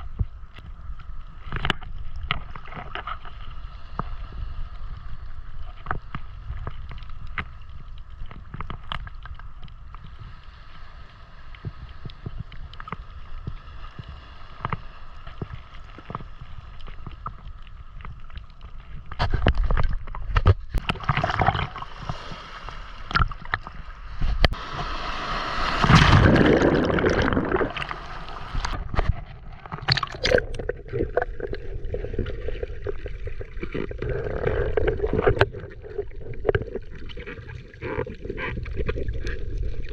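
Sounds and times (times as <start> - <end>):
water sloshing and splashing: 11.0 - 39.9.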